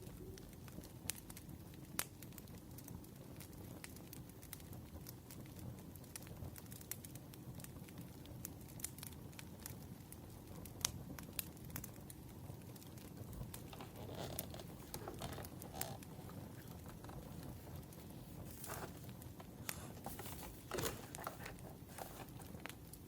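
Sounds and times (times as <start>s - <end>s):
wood fire crackling: 0.1s - 23.0s
soft rustle: 13.3s - 23.0s.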